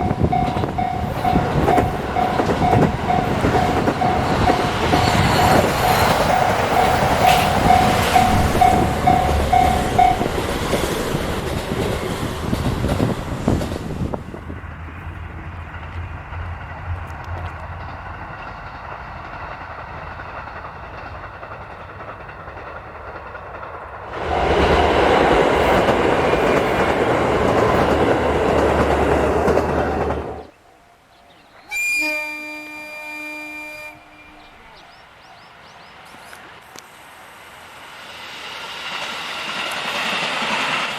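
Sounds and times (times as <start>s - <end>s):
pulsing ringing tone: 0.0s - 10.4s
short multi-tone sound: 0.0s - 10.5s
train running on rails: 0.0s - 40.9s.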